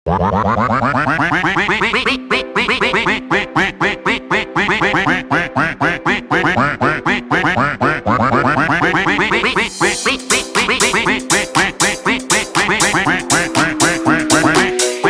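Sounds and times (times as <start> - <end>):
rhythmic duck-like quacks: 0.0 - 15.0
backing music with held note: 8.8 - 15.0.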